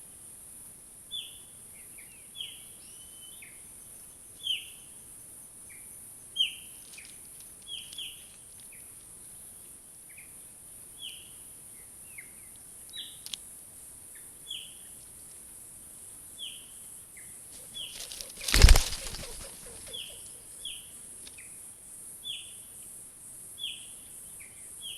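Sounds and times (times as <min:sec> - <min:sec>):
bird chirping: 0:17.6 - 0:21.1
loud brief rustle: 0:17.8 - 0:20.1.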